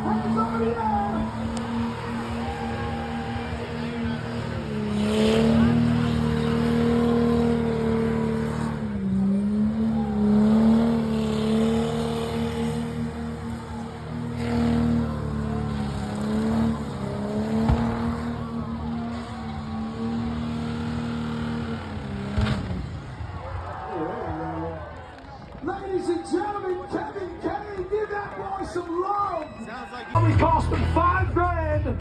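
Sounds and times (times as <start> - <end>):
car engine revving on limiter: 0.0 - 23.0.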